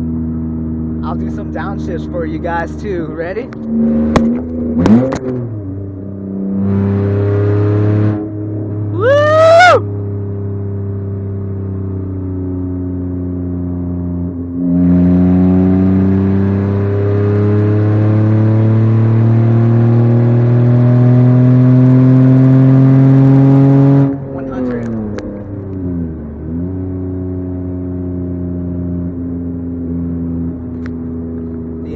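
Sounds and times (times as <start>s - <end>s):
car engine and exhaust revving: 0.0s - 31.9s
sharp throttle blip: 3.4s - 5.4s.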